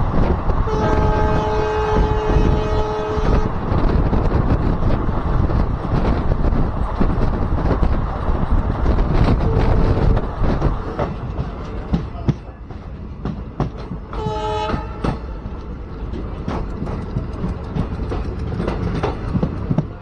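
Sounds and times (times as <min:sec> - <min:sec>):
train rumbling on track: 0:00.0 - 0:20.0
train horn: 0:00.6 - 0:03.6, 0:09.4 - 0:10.2, 0:14.1 - 0:15.2.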